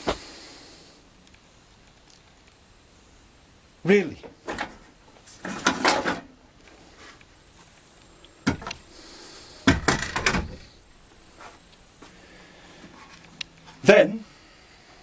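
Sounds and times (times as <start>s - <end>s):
metal knocks and rattle: 8.5s - 8.8s, 9.7s - 10.7s.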